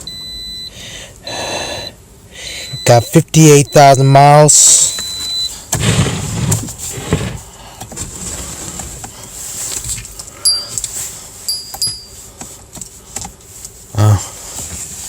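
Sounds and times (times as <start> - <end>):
rustling and clicking in car cabin: 4.8 - 15.0.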